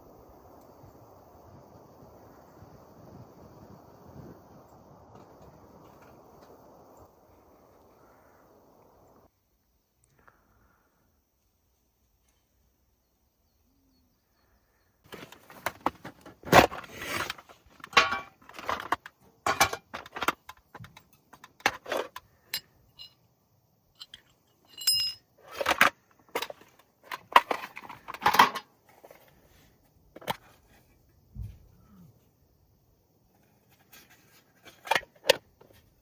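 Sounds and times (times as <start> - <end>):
camping gear clinking and knocking: 15.1 - 31.8, 33.3 - 36.0
metallic ringing: 24.0 - 25.2.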